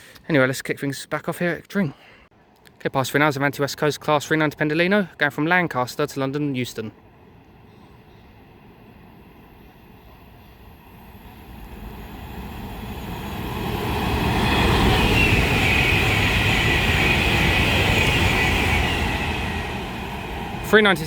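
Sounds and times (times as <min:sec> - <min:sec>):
electric train passing: 0:06.9 - 0:21.0.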